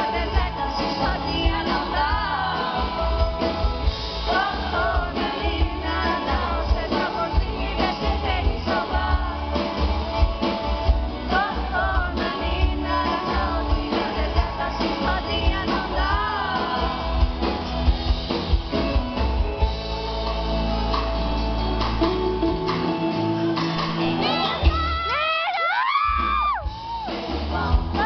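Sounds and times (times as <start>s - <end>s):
woman singing a ballad: 0.0s - 3.5s, 4.2s - 9.7s, 11.2s - 17.2s, 27.5s - 28.0s
heavy bass: 0.0s - 25.2s
live band playing: 0.0s - 28.0s.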